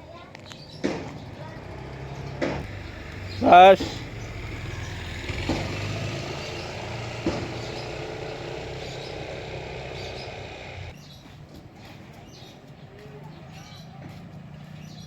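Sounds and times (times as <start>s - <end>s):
vehicle engine idling: 0.0s - 11.0s
short knocks: 5.4s - 10.9s.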